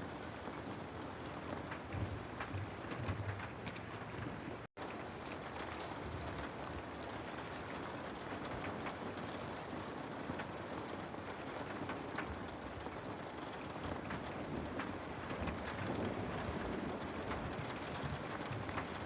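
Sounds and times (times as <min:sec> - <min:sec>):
raindrop ticks: 0:00.3 - 0:19.0.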